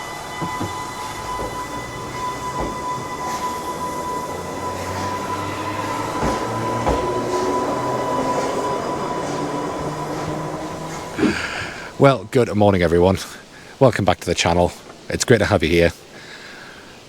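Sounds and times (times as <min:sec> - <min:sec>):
high-pitched whine: 0:00.0 - 0:13.5
train rumbling on rails: 0:00.0 - 0:13.7
wheel clicks over rail joints: 0:00.3 - 0:12.0.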